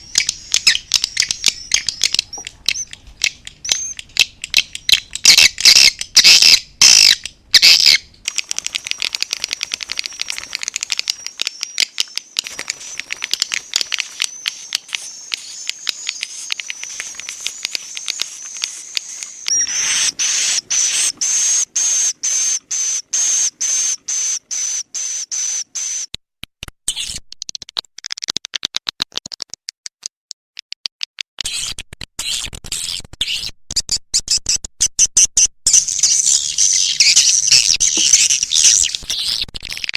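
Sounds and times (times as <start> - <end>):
swiftlet clicking chatter: 0.0 - 24.8, 35.7 - 39.9.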